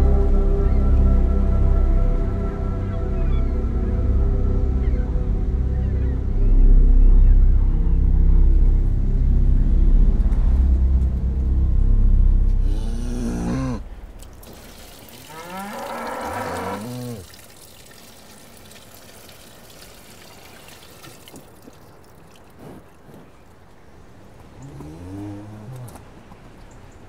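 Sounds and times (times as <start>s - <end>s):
cow mooing: 12.6s - 13.9s, 15.2s - 17.3s, 24.6s - 26.1s
milk splashing onto stone floor: 14.2s - 22.6s.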